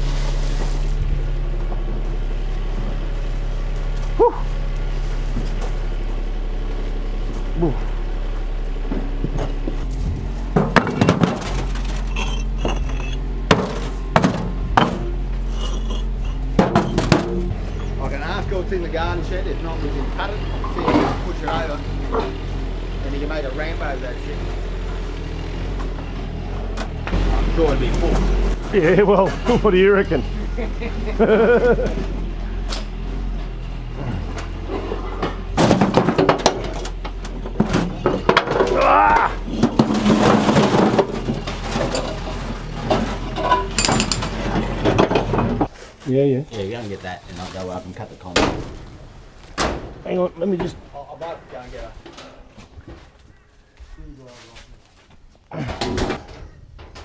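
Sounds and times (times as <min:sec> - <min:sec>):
steady low hum: 0:00.0 - 0:38.6
engine idling: 0:00.0 - 0:45.7
concrete pavers knocking together: 0:10.5 - 0:15.0.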